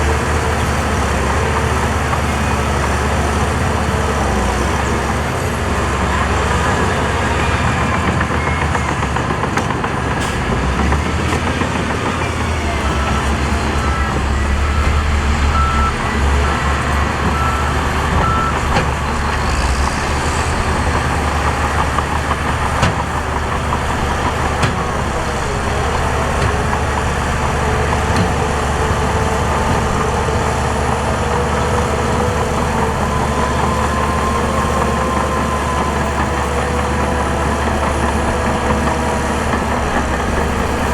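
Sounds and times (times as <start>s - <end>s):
heavy machinery engine running: 0.0s - 40.9s
reversing alarm beeps: 12.5s - 19.0s.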